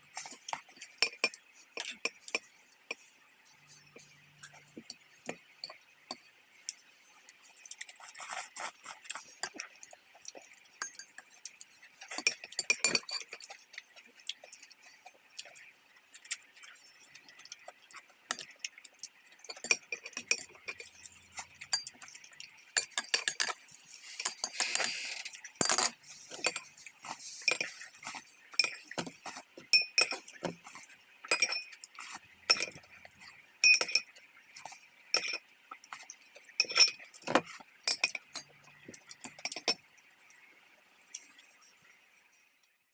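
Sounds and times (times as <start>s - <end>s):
close-up eating sounds: 0.0s - 42.8s
chopsticks clinking against bowls: 10.8s - 13.6s, 19.4s - 23.6s, 25.6s - 33.0s, 33.6s - 35.4s, 36.6s - 37.2s.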